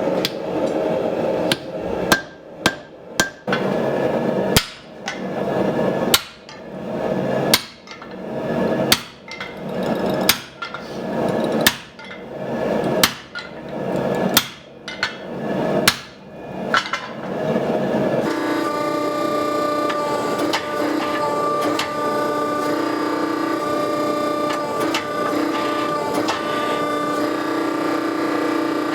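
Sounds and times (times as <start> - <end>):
hammer striking steel: 1.5 - 3.6, 13.0 - 13.5.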